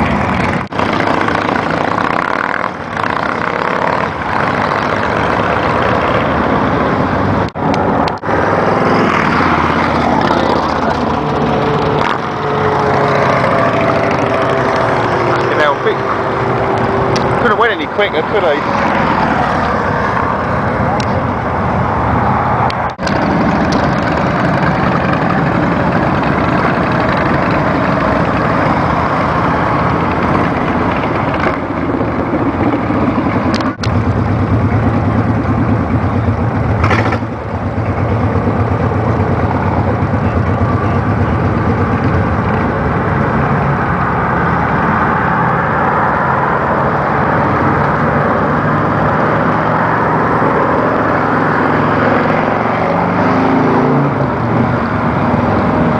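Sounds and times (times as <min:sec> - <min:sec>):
motorcycle engine running: 0:00.0 - 0:07.5, 0:08.2 - 0:19.5, 0:23.0 - 0:44.3.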